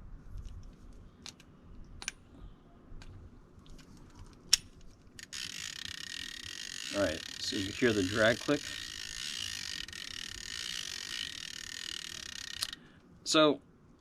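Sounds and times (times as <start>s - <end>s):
fishing reel clicking: 5.2s - 12.8s
reel drag clicking: 5.2s - 12.8s.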